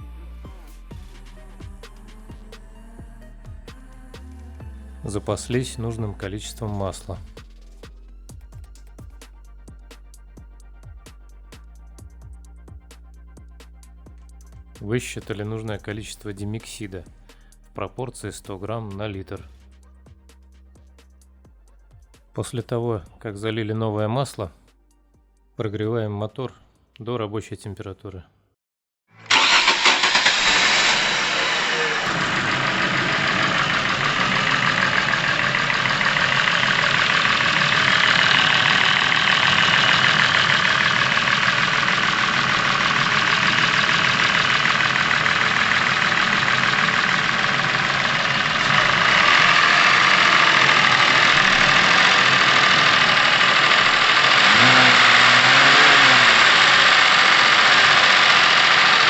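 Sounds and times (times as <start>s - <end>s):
car engine idling: 29.3s - 59.0s.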